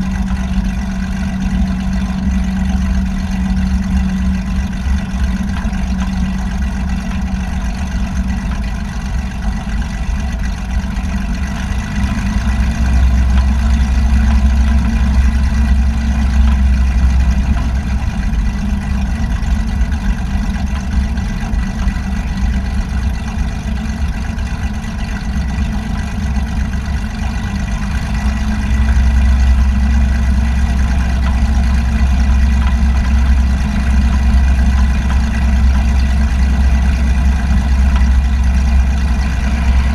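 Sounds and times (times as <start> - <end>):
aircraft engine droning: 0.0 - 39.9.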